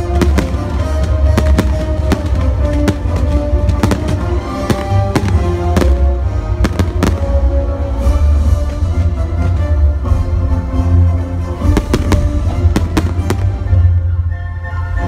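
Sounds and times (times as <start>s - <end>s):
fireworks bangs: 0.0s - 7.4s, 11.7s - 13.7s
loud music: 0.0s - 15.0s.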